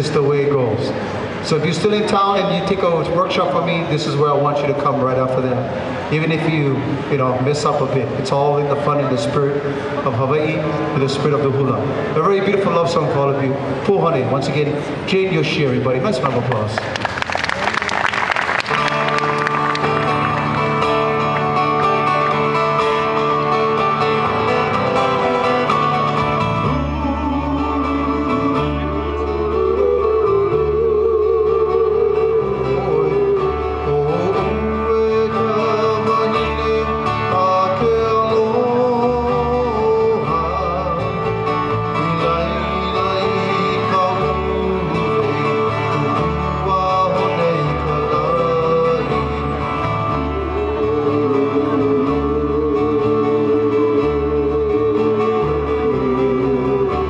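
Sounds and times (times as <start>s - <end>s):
steady bass line: 18.5s - 57.0s
plucked guitar: 18.6s - 57.0s
person singing with vibrato: 25.7s - 57.0s.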